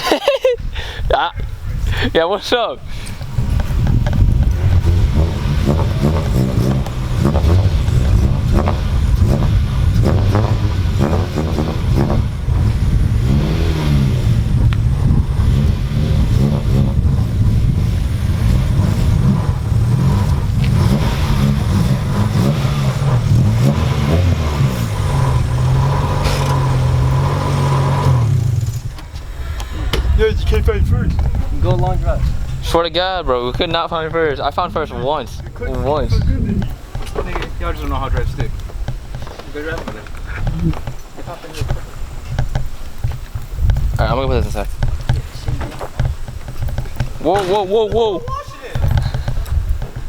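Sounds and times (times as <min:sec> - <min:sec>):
car engine revving: 0:03.2 - 0:29.2.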